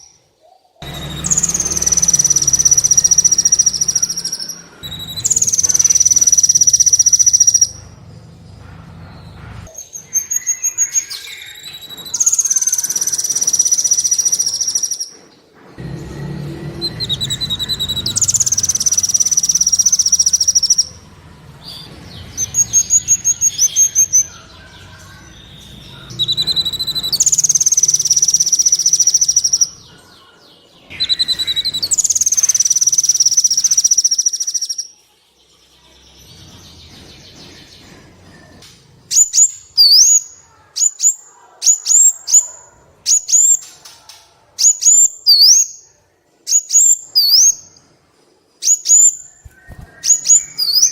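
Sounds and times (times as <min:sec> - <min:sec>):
bird whistled notes: 0:00.8 - 0:07.8, 0:09.8 - 0:15.1, 0:16.6 - 0:21.0, 0:22.3 - 0:29.8, 0:30.9 - 0:34.8
sunbird trilling: 0:00.8 - 0:08.4, 0:09.1 - 0:15.1, 0:16.6 - 0:21.0, 0:21.7 - 0:30.0, 0:30.9 - 0:34.9.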